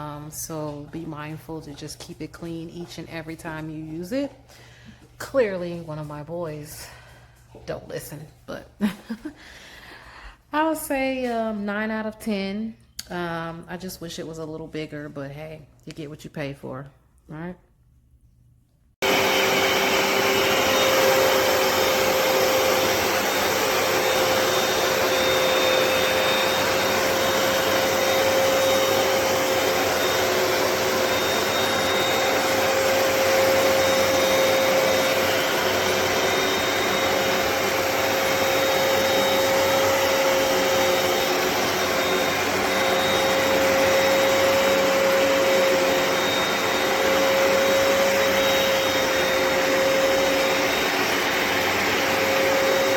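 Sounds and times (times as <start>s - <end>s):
carpet cleaner suction motor whine: 19.0s - 52.9s.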